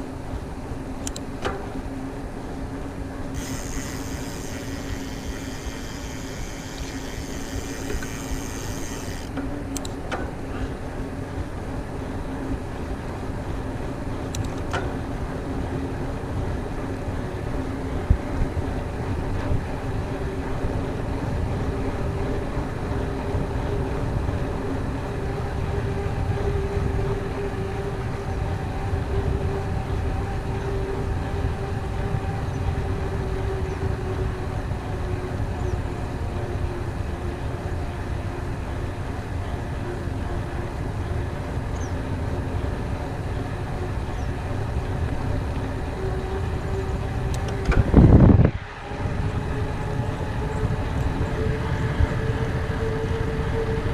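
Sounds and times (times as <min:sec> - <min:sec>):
bike tyre and drivetrain noise: 0:00.0 - 0:53.9
wind rumbling on microphone: 0:00.0 - 0:53.9
loud low rush: 0:47.8 - 0:53.9.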